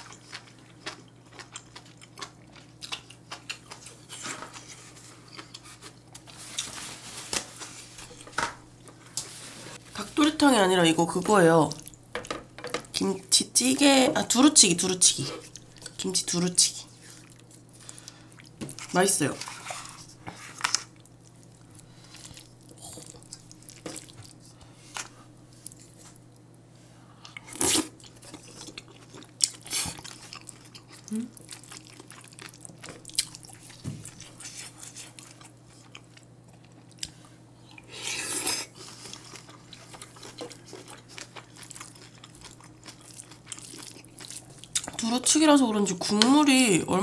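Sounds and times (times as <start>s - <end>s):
chewing with wet mouth sounds: 0.0s - 6.7s, 11.5s - 12.1s, 15.1s - 16.2s, 16.8s - 26.5s, 27.2s - 45.0s.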